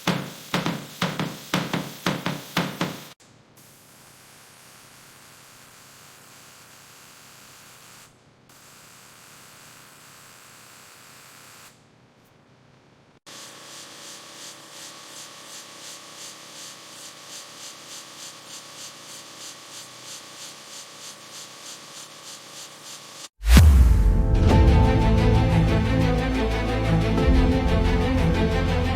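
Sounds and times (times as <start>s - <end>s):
steady hiss: 0.0s - 8.0s
rhythmic rubbing: 24.5s - 28.9s.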